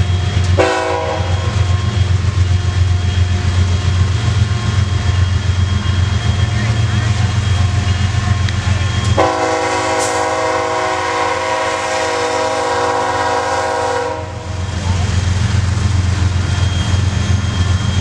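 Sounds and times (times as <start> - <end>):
train rumbling: 0.0 - 18.0
locomotive air horn chord: 0.6 - 1.6, 9.2 - 14.6.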